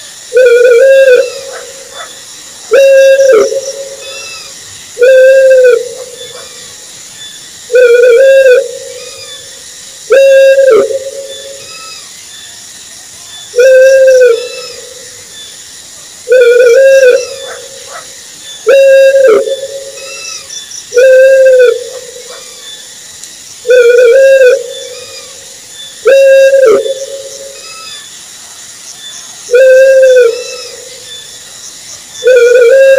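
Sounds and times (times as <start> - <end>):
owl hooting: 0.3 - 6.8, 7.7 - 12.1, 13.5 - 15.2, 16.2 - 22.8, 23.6 - 28.1, 29.5 - 31.3, 32.2 - 32.9.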